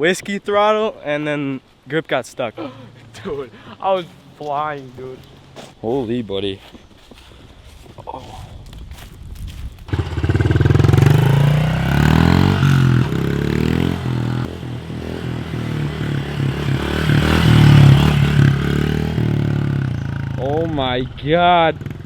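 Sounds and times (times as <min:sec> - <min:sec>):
motorbike engine revving: 0:09.9 - 0:20.8.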